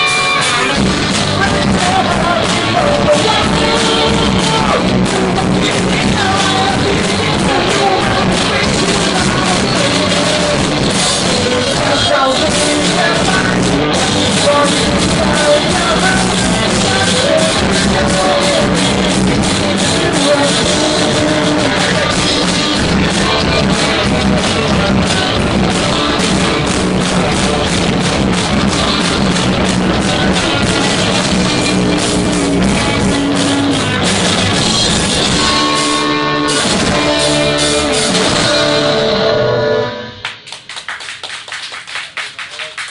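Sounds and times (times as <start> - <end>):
person singing: 0.0 - 31.7
rock band playing live: 0.0 - 41.0
drums: 0.0 - 42.9
guitar: 0.0 - 42.9.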